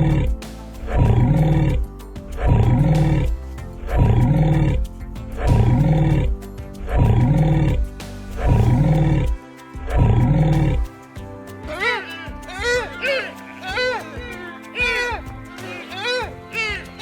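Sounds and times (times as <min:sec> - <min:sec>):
big cat roar effect: 0:00.0 - 0:10.9
music: 0:00.0 - 0:17.0.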